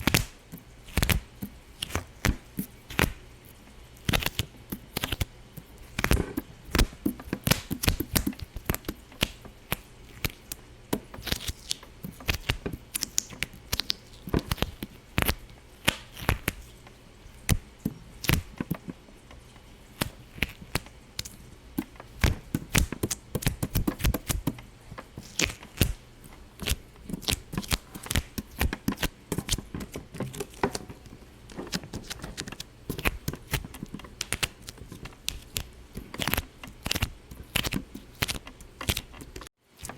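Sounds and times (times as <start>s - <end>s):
sharp irregular pops and clicks: 6.0s - 10.5s, 20.0s - 24.6s.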